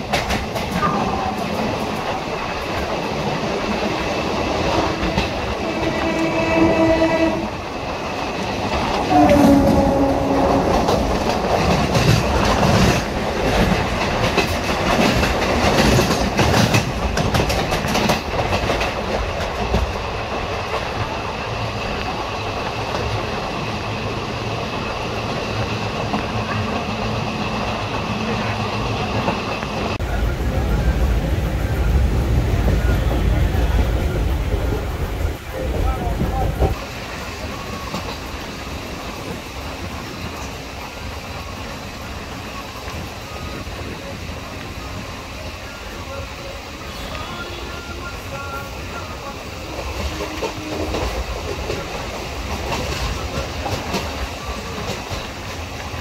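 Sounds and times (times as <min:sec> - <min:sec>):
train wheels clacking over rail joints: 0:00.0 - 0:30.1, 0:49.6 - 0:56.0
train running rumble: 0:00.0 - 0:56.0.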